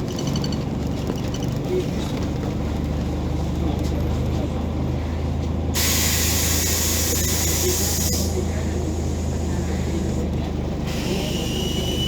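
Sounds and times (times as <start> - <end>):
bus engine humming: 0.0 - 12.0
compressed air hiss: 5.8 - 8.3.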